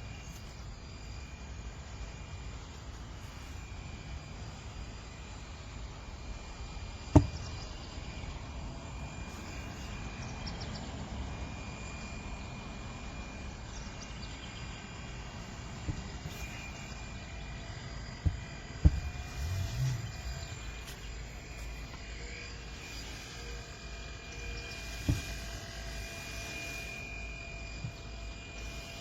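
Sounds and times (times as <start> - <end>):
outdoor background noise: 0.0 - 29.0
sharp knocks: 7.1 - 7.4.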